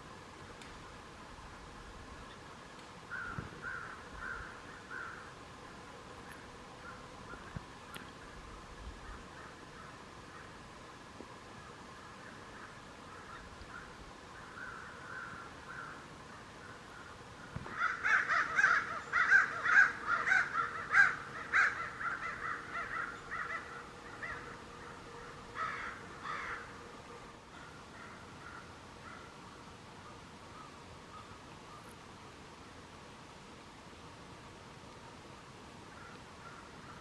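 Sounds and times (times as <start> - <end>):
crows cawing: 3.1 - 5.3, 12.5 - 26.8, 27.5 - 29.3.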